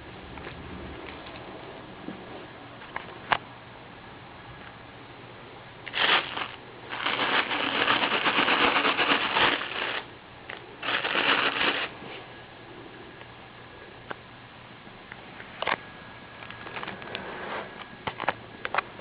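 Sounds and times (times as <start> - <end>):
kitten rustling and scratching: 5.9 - 10.1, 10.8 - 12.3.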